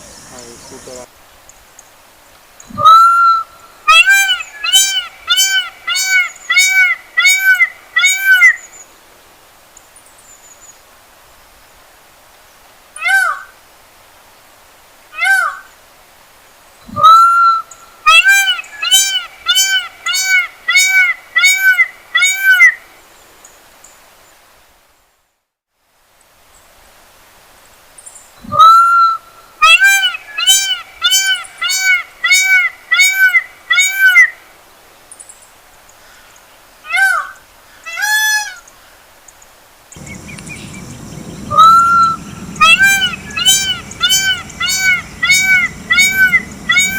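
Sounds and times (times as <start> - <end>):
peacock calling: 2.8 - 8.6, 17.0 - 22.8, 29.6 - 34.3, 40.0 - 46.9
low rushing noise: 40.0 - 46.9.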